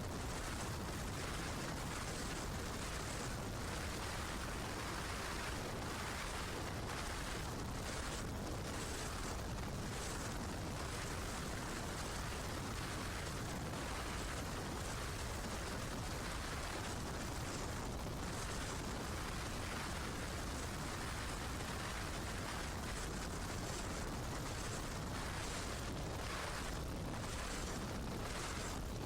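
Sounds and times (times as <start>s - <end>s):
constant low rumble: 0.0s - 29.0s.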